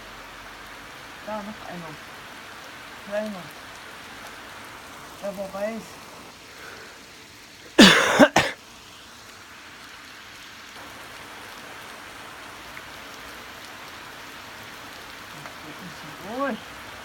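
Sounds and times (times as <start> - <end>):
heavy rain hissing: 0.0 - 17.0
person coughing: 7.8 - 8.6.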